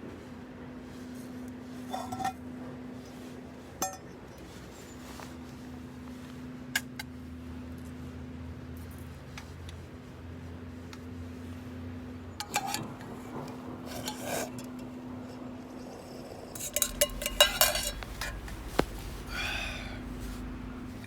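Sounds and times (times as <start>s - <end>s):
metal cookware clinking and scraping: 16.6s - 21.0s
steady low hum: 16.6s - 21.0s.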